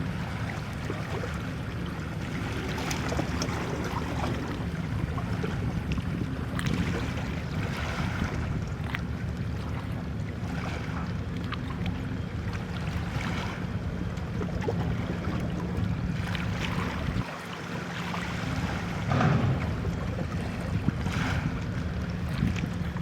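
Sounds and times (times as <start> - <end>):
wind buffeting microphone: 0.0 - 8.9, 14.6 - 17.3, 18.2 - 23.0
boat engine humming: 0.0 - 23.0.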